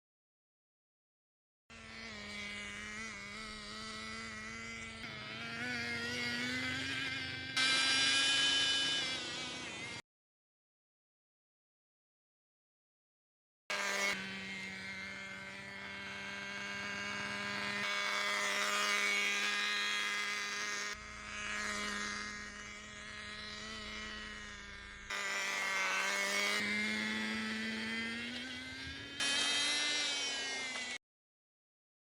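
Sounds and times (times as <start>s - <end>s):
small rc car engine running: 1.7s - 10.0s, 13.7s - 31.0s.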